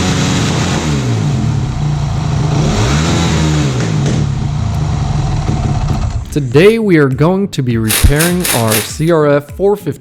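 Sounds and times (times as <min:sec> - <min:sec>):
dirt bike engine revving: 0:02.4 - 0:04.0, 0:07.9 - 0:09.1.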